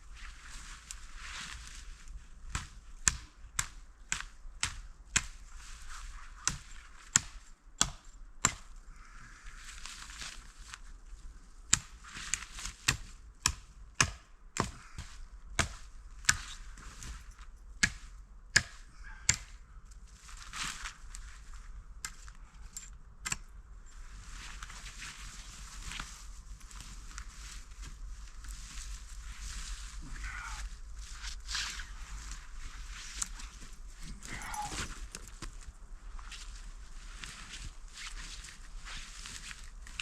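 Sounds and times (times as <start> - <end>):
wood being chopped: 12.9 - 14.9, 17.8 - 19.5.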